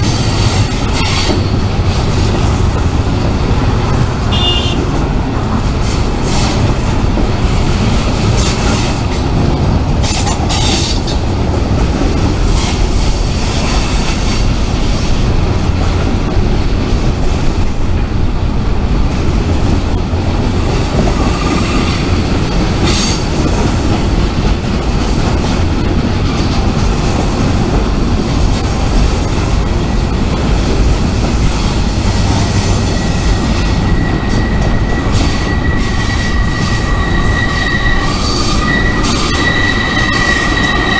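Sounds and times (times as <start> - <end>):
freight train rumbling: 0.0 - 40.9
high wheel squeals: 30.8 - 40.9
thin steady squeal: 31.9 - 40.9.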